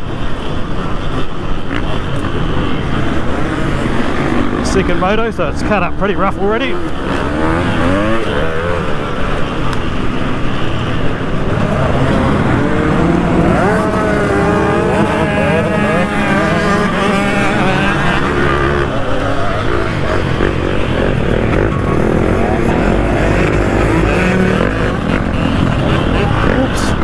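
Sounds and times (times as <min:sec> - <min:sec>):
other dirt bike engines: 0:00.0 - 0:27.0
two-stroke motocross engine revving: 0:00.0 - 0:27.0.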